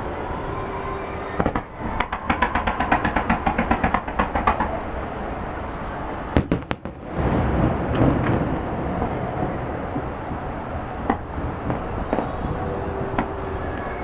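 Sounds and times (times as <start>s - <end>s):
fireworks sharp bangs: 1.4s - 4.8s, 6.3s - 13.4s
fireworks crackling: 6.3s - 14.0s.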